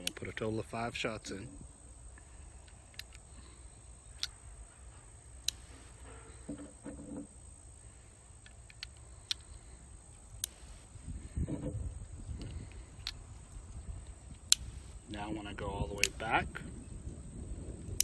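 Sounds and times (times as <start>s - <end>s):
soft handling noise: 0.0s - 15.3s
revolver metallic clicks: 2.1s - 4.4s, 5.3s - 6.0s, 8.4s - 10.9s, 12.4s - 15.2s, 15.9s - 16.4s
faint ticks: 5.4s - 6.2s, 12.3s - 15.0s.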